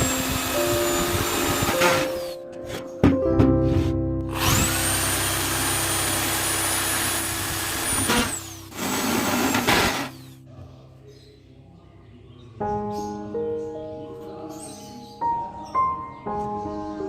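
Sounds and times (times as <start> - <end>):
power tool whining and cutting: 0.0 - 2.4, 4.3 - 10.3.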